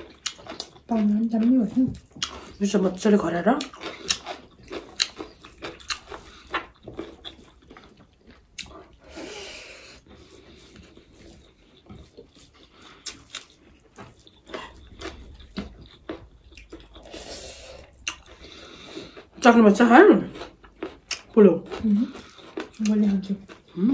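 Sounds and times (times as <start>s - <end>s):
chewing clicks: 0.0s - 2.6s, 3.6s - 9.0s, 17.8s - 18.5s, 20.4s - 23.7s.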